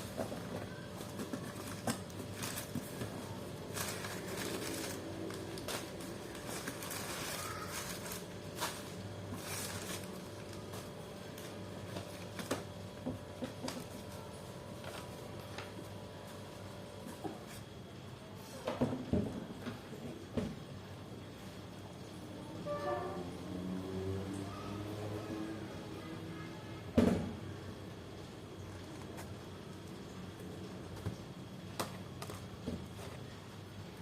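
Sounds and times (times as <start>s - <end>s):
packaging clicks and rustles: 0.0s - 15.9s.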